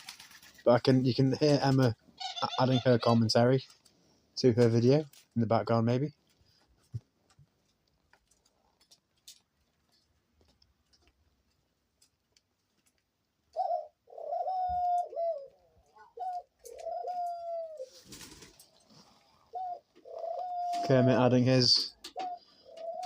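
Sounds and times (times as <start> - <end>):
dove cooing: 13.5 - 23.0
rustling: 16.3 - 21.0.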